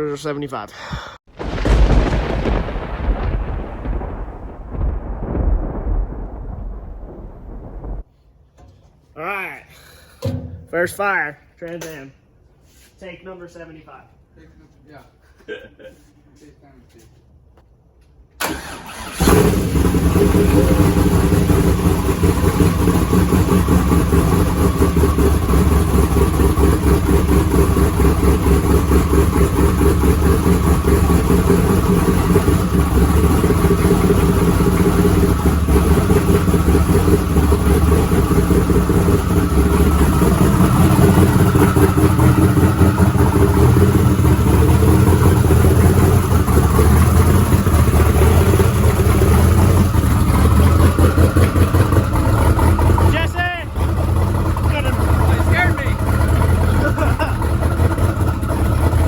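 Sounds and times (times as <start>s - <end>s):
engine starter cranking: 18.4s - 22.6s
car engine idling: 18.4s - 59.0s.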